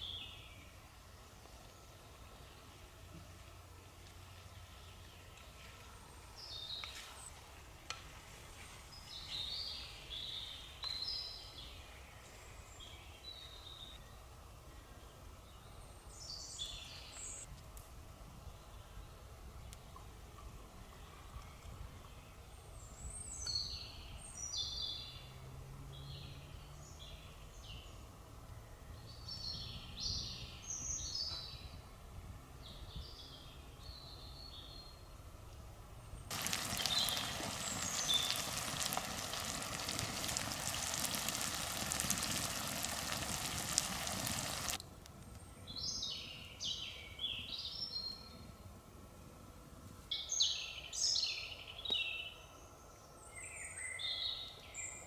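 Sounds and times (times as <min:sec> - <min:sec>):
songbirds singing: 0:00.0 - 0:03.1, 0:03.8 - 0:08.0, 0:08.9 - 0:17.5, 0:18.4 - 0:48.6, 0:50.1 - 0:55.0
steady hiss: 0:36.3 - 0:45.1.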